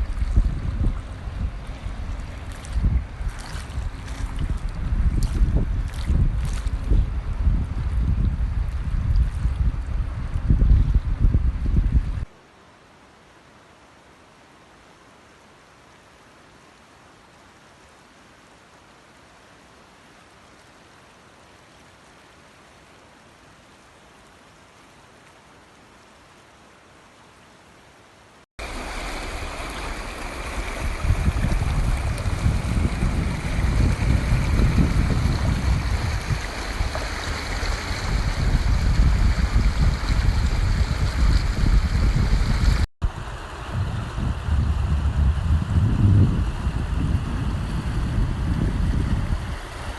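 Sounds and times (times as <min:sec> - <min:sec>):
rushing floodwater: 0:00.0 - 0:11.0, 0:11.9 - 0:49.9
wind buffeting microphone: 0:00.0 - 0:12.3, 0:28.6 - 0:49.9
rain falling: 0:12.2 - 0:42.9.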